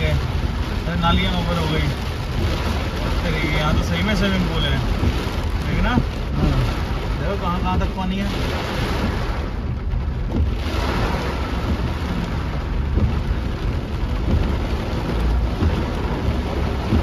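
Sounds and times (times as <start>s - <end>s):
heavy rain drumming on car roof: 0.0s - 17.0s
low rumble: 0.0s - 17.0s.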